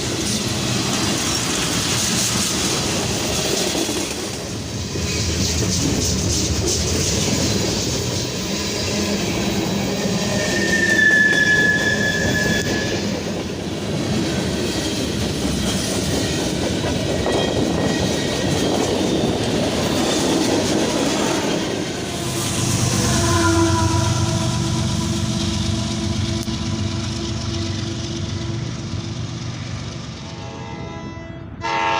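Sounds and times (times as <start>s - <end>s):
train rolling over rail joints: 0.0s - 30.9s
high wheel squeal: 9.2s - 13.4s.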